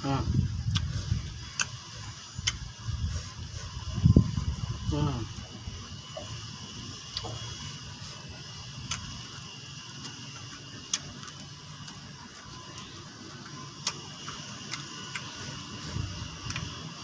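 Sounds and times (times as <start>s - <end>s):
person chewing leaves: 0.0s - 17.0s
sharp mouth clicks and smacks: 0.6s - 1.8s, 2.4s - 2.7s, 8.8s - 9.2s.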